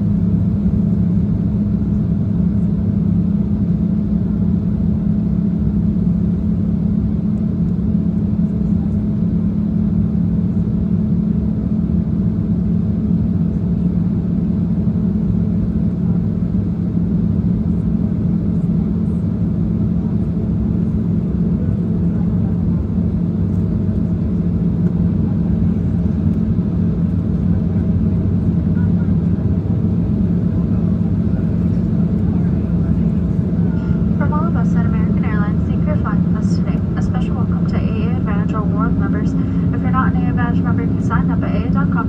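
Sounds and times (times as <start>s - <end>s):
airliner cabin engine drone: 0.0s - 42.0s.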